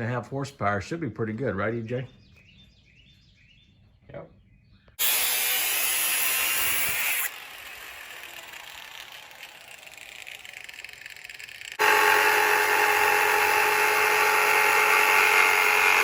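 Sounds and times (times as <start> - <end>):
power tool running on metal: 5.0 - 16.0.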